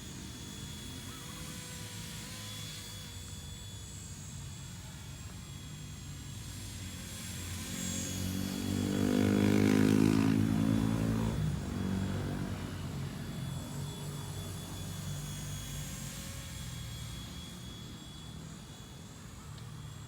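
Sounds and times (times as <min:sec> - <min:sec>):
rc helicopter rotors whirring: 0:00.0 - 0:20.0.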